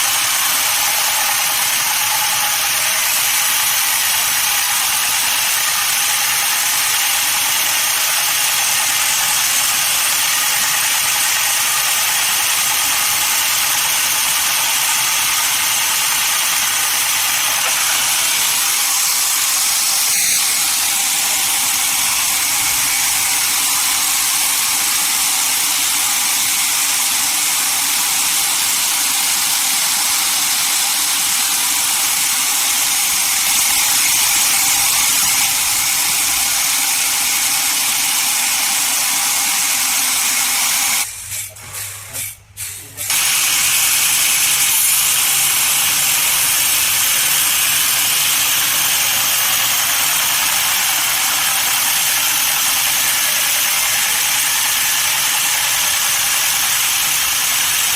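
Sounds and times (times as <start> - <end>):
sawmill saw cutting log: 0.0 - 57.9.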